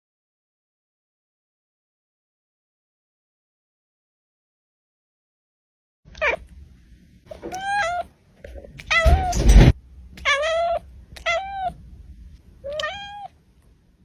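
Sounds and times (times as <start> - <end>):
cat meowing: 6.2 - 6.5, 7.3 - 8.1, 8.8 - 11.8, 12.6 - 13.4.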